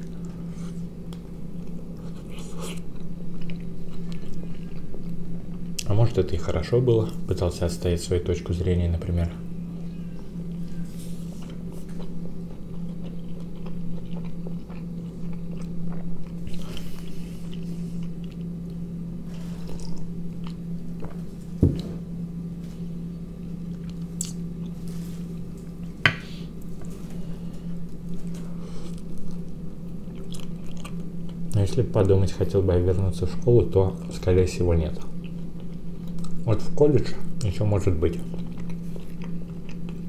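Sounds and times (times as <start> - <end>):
person chewing wet squishy food: 0.0 - 6.0, 9.8 - 21.9, 23.5 - 26.0, 26.6 - 31.6, 35.0 - 36.5, 38.1 - 40.0.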